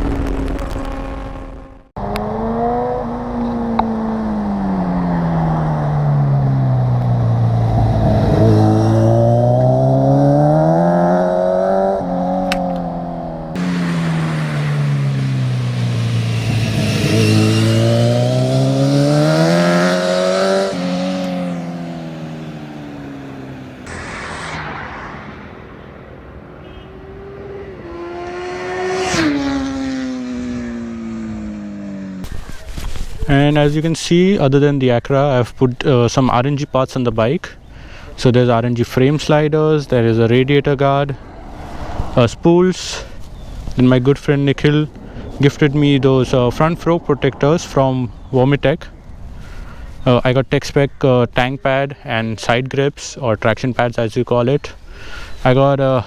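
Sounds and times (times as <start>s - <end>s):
motorcycle engine revving: 0.6s - 32.7s.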